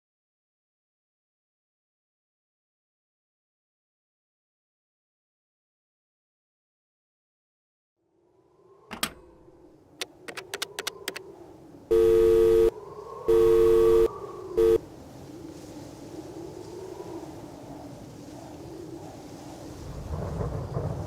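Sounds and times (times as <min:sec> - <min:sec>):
sharp clicks: 0:10.0 - 0:11.2
telephone line tone: 0:11.9 - 0:12.7, 0:13.3 - 0:14.8.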